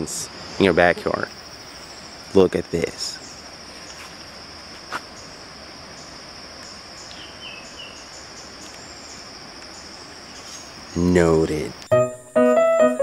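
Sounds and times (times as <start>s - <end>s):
forest insects droning: 0.0s - 12.7s.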